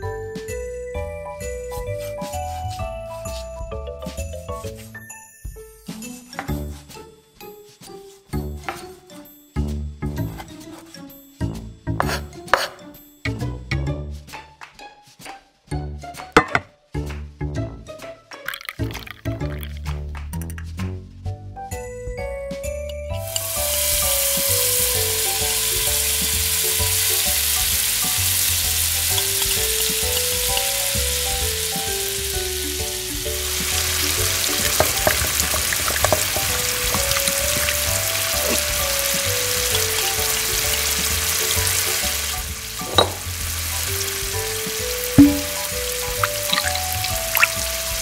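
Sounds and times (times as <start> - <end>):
hot oil sizzling in wok: 23.2 - 48.0.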